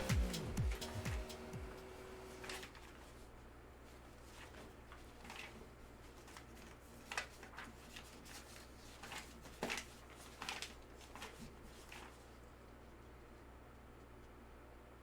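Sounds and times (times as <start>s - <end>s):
cards and packaging rustling: 4.2s - 12.3s.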